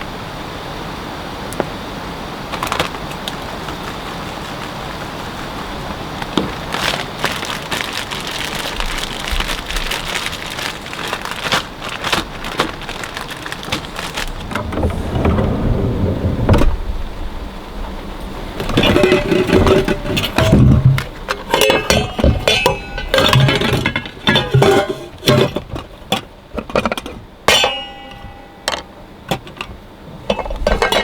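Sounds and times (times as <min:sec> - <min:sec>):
rain falling: 0:01.4 - 0:19.7.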